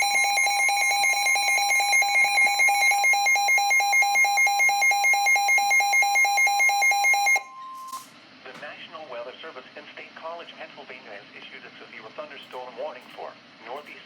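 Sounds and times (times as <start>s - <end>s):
rapid electronic alert beeping: 0.0s - 8.0s
steady warning alarm tone: 0.0s - 8.1s.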